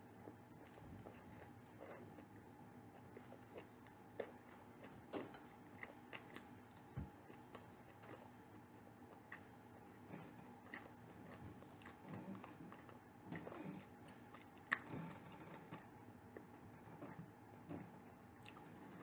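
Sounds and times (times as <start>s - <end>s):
chewing soft food: 0.0s - 19.0s.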